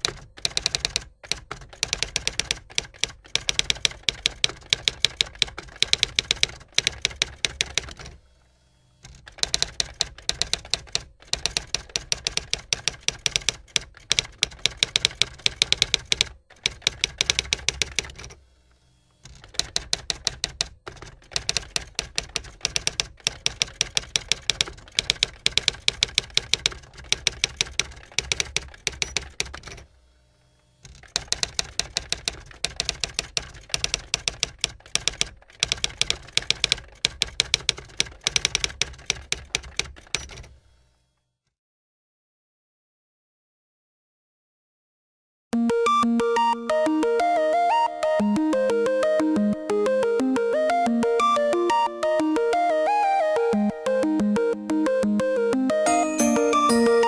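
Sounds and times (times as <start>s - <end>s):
typewriter keys clacking: 0.0s - 8.2s, 9.1s - 18.4s, 19.3s - 29.9s, 30.9s - 40.5s.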